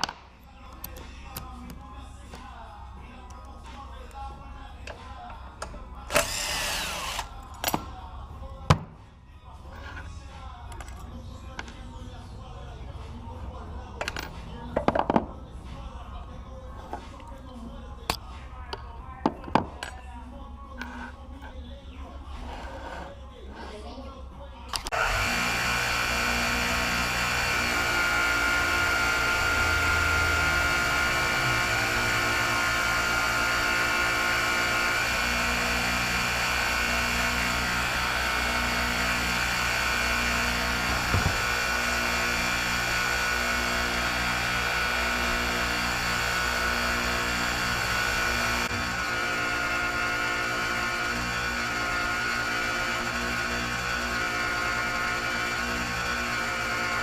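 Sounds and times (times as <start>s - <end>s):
small engine running with whine: 24.9s - 57.0s.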